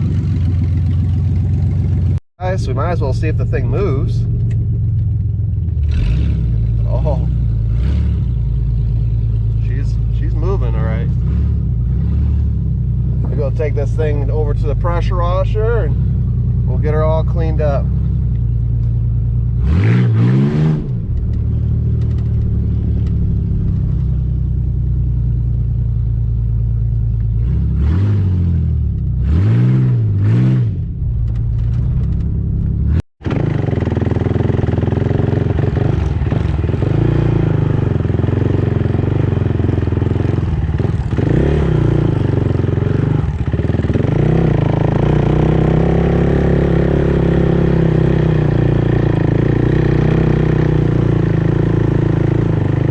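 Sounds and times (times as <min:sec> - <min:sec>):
engine idling with light clatter: 0:00.0 - 0:06.0
car engine revving: 0:00.0 - 0:52.9.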